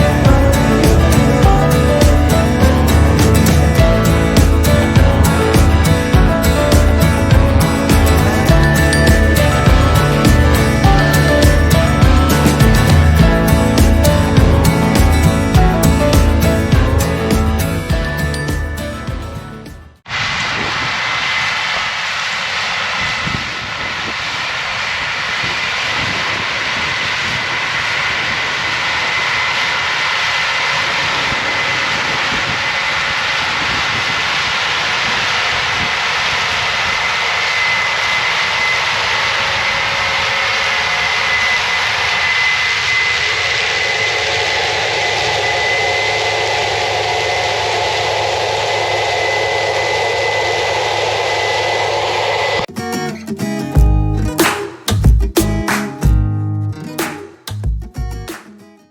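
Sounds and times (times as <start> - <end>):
combine harvester whining: 0.0 - 52.7
low hum: 0.0 - 52.7.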